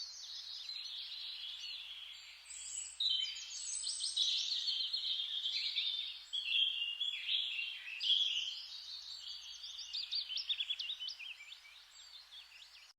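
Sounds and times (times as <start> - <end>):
songbirds chirping and trilling: 0.0 - 12.9.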